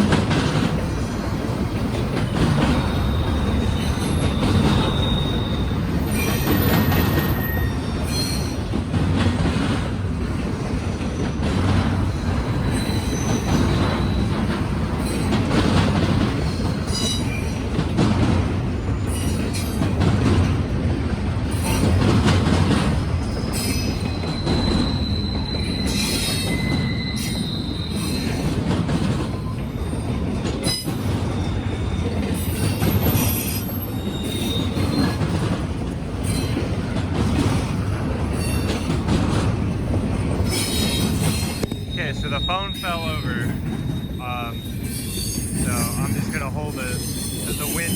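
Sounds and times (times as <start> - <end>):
freight train rumbling past: 0.0 - 47.9
high wheel squeals: 2.7 - 8.7, 11.1 - 15.5, 23.2 - 35.4, 40.2 - 47.9.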